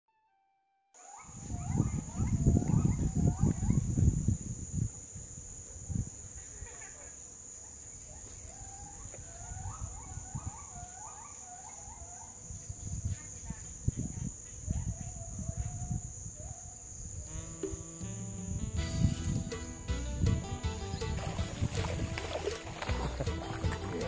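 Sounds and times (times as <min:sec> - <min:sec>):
high-pitched insect drone: 0:11.9 - 0:20.2, 0:20.8 - 0:24.0.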